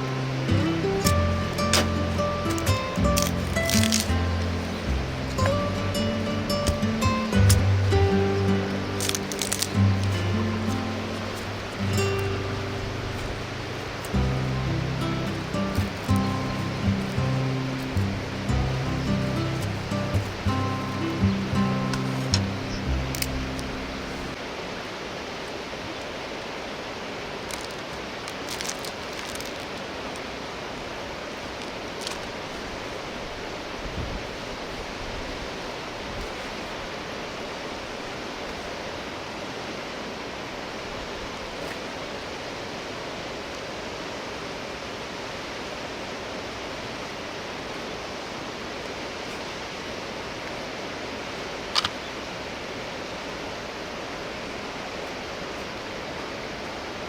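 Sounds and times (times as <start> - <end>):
faint clicks: 51.7 - 52.0.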